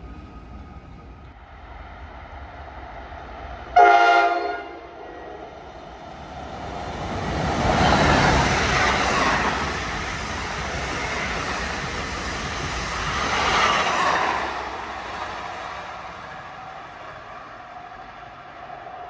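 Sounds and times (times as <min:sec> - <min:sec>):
train rumbling past: 0:00.0 - 0:19.0
train horn blast: 0:03.8 - 0:05.5.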